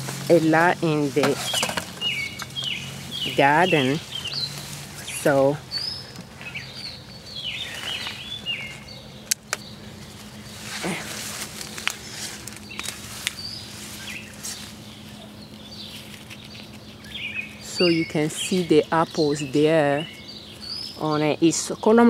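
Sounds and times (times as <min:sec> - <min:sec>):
birds chirping: 0:00.0 - 0:22.0
steady low hum: 0:00.0 - 0:22.0
sharp clicks: 0:09.2 - 0:09.7.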